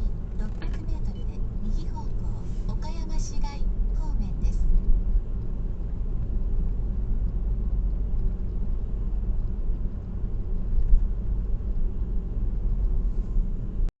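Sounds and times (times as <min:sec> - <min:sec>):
car road noise rumble: 0:00.0 - 0:13.9.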